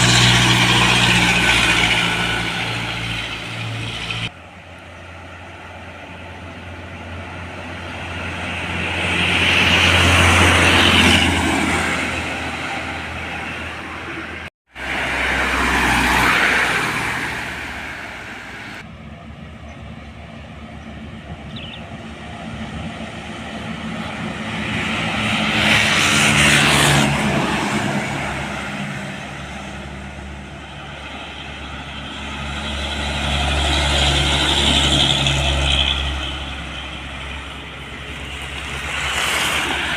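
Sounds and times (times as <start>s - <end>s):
large road vehicles passing: 0.0s - 39.9s.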